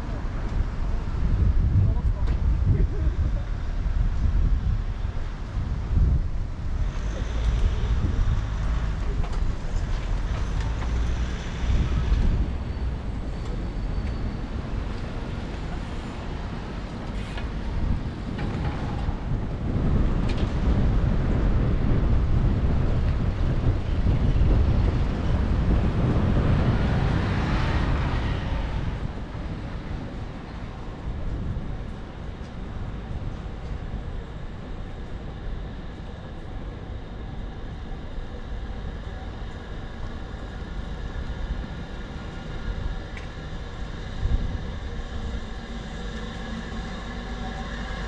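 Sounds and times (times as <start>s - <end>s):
passing road traffic rumble: 3.0s - 48.0s.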